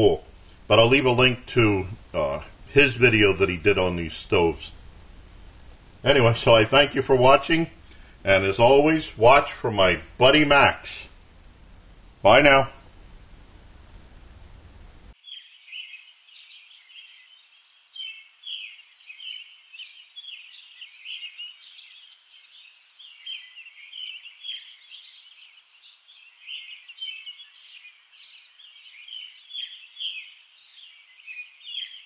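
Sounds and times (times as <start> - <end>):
birds chirping and singing: 15.2 - 32.0.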